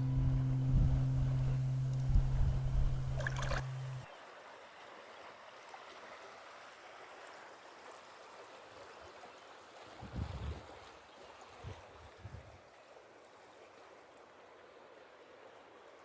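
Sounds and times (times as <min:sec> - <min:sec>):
guitar music: 0:00.0 - 0:04.0
river water flowing: 0:00.0 - 0:09.8.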